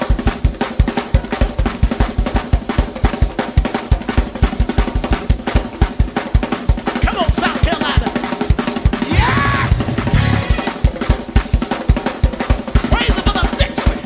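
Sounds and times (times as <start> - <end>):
fast gospel music: 0.0 - 14.0
rapid bass drum and snare: 0.0 - 14.0
sustained held chords: 9.1 - 10.8.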